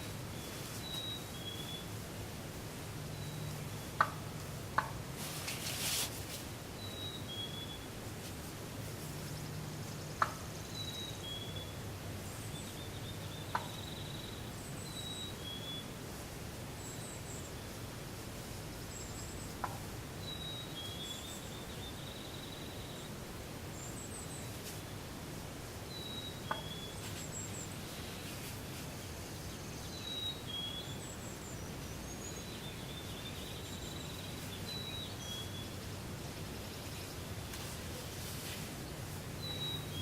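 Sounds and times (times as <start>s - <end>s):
small birds chirping: 0.0s - 2.0s, 8.8s - 16.0s, 16.7s - 25.1s, 25.8s - 40.0s
low outdoor background noise: 0.0s - 40.0s.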